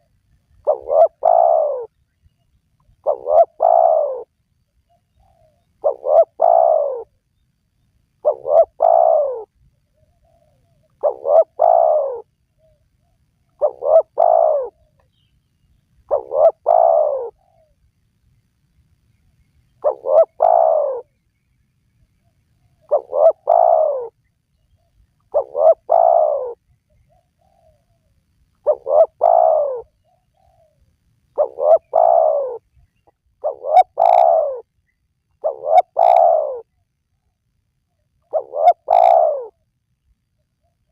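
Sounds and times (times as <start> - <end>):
dove cooing: 0.0 - 2.0, 2.9 - 4.3, 4.9 - 7.2, 8.2 - 15.1, 16.0 - 17.8, 19.8 - 21.1, 22.6 - 24.2, 25.3 - 36.8, 38.2 - 39.7.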